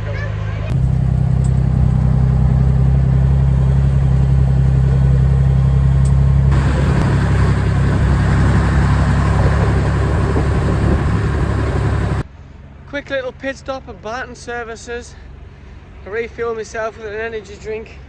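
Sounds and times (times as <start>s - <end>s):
vehicle engine droning: 0.0s - 12.3s
road noise: 0.0s - 12.4s.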